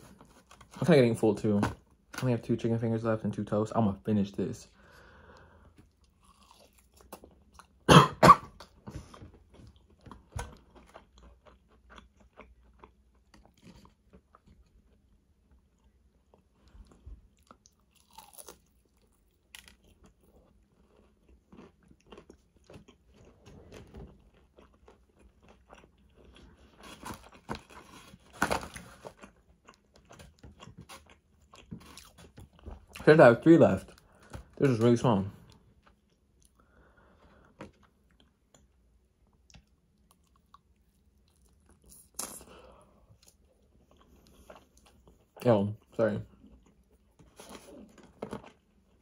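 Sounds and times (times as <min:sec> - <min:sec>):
crunchy fried food chewing: 0:05.2 - 0:07.9, 0:08.5 - 0:49.0
loud crunching bite: 0:17.9 - 0:20.0.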